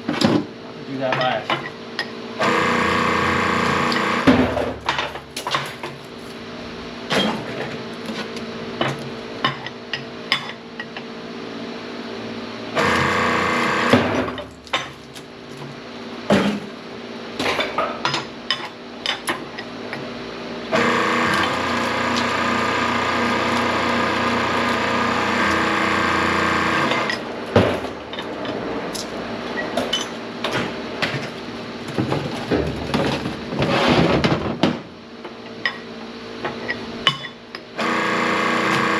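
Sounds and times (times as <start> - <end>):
hydraulic press humming: 2.4 - 9.4, 12.7 - 17.9, 20.7 - 28.3, 37.8 - 38.9.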